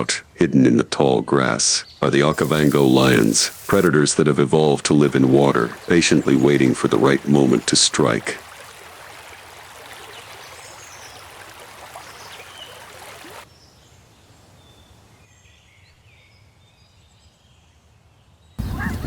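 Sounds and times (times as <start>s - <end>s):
bird calls: 2.3s - 3.9s, 4.7s - 13.4s
steady hiss of running water: 2.3s - 13.5s.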